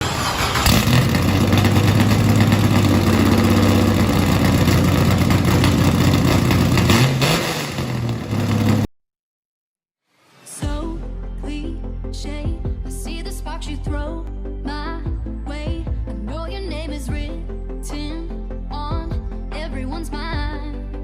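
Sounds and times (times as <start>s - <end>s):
car engine revving: 0.0s - 8.9s
car engine running: 0.0s - 8.9s
music: 10.1s - 21.0s.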